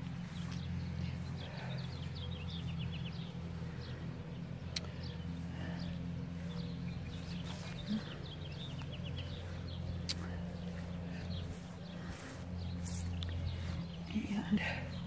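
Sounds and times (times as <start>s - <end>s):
songbirds chirping: 0.0s - 15.0s
steady low hum: 0.0s - 15.0s.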